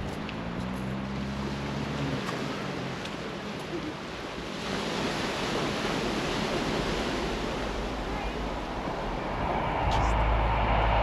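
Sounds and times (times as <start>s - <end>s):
sea surf washing on shore: 0.0s - 11.0s
low steady hum: 8.0s - 11.0s.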